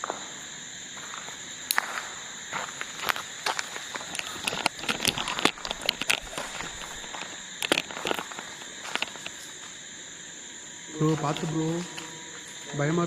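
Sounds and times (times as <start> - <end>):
footsteps crunching on gravel: 0.0 - 9.8, 11.0 - 12.7
crickets chirping: 0.0 - 13.0.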